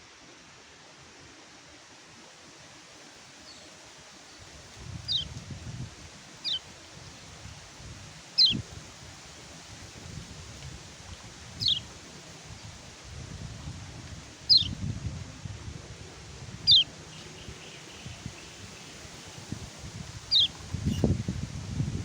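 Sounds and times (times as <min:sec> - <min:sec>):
steady hiss: 0:00.0 - 0:22.0
low wind rumble: 0:04.4 - 0:22.0
bird giving high call notes: 0:16.7 - 0:16.9.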